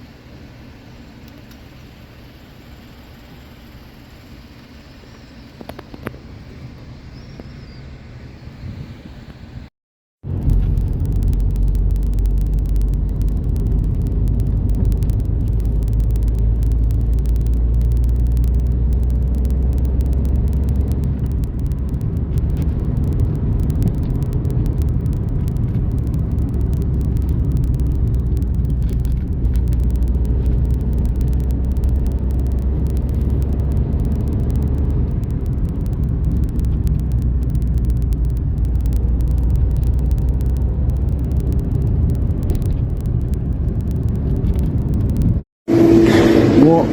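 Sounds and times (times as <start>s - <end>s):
car engine and road rumble: 0.0s - 46.9s.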